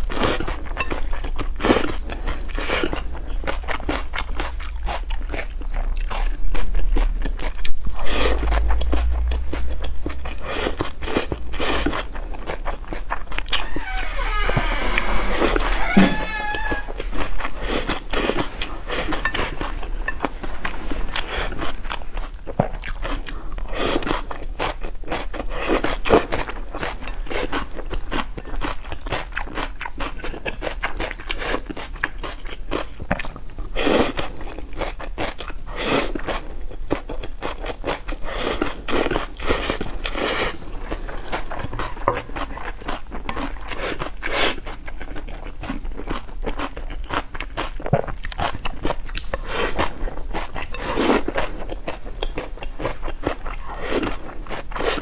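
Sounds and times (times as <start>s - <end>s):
wet chewing and mouth clicks: 44.8s - 55.0s.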